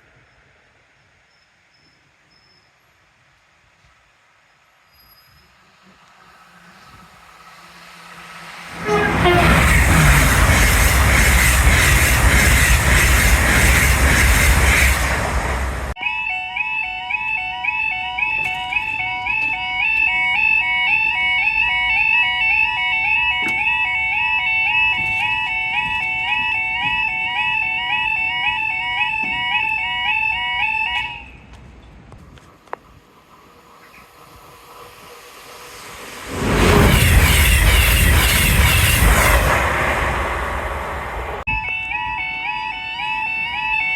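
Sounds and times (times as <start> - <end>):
train passing: 4.1 - 16.0, 17.9 - 43.9
crossing alarm two-tone warble: 7.1 - 31.4, 33.3 - 43.9.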